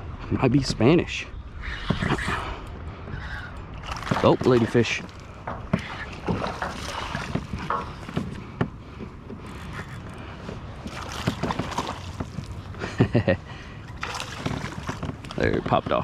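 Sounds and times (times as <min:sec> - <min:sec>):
wind on microphone: 0:00.0 - 0:05.0
water splashing around kayak: 0:01.5 - 0:16.0.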